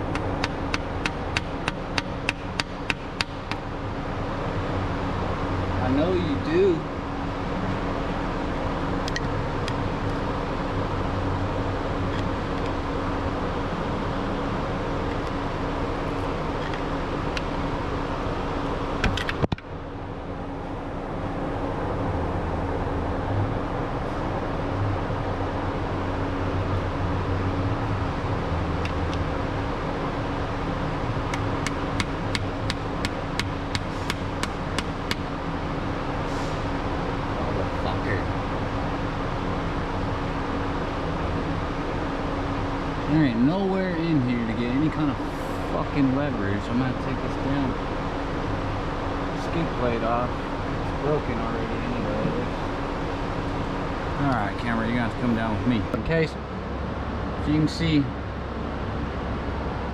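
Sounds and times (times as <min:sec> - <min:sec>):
steady background hum: 0:00.0 - 0:59.9
sharp metal taps: 0:00.1 - 0:03.6, 0:31.3 - 0:35.3.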